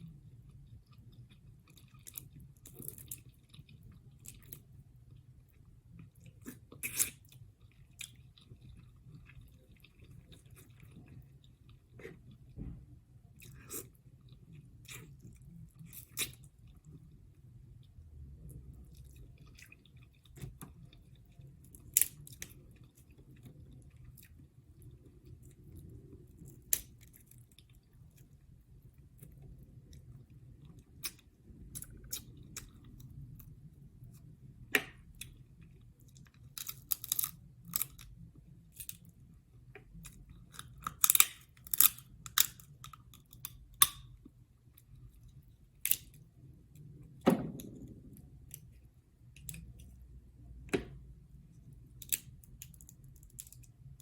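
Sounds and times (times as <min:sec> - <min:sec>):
chewing and wet mouth sounds: 0:00.0 - 0:50.1
sharp clicks and cracks: 0:40.6 - 0:44.1.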